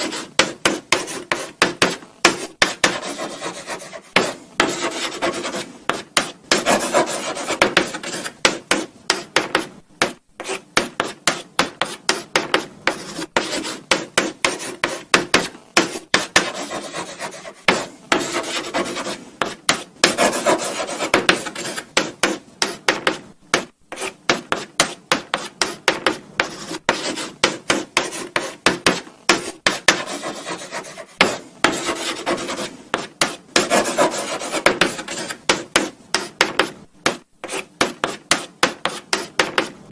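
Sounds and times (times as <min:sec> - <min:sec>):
chalk scratching on blackboard: 0:00.0 - 0:39.8.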